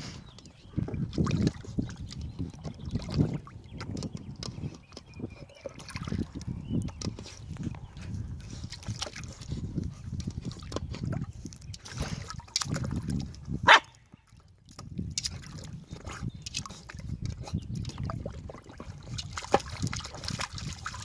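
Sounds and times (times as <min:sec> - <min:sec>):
puppy splashing in water: 0:00.7 - 0:07.6, 0:08.4 - 0:21.0
puppy barking: 0:13.6 - 0:13.9.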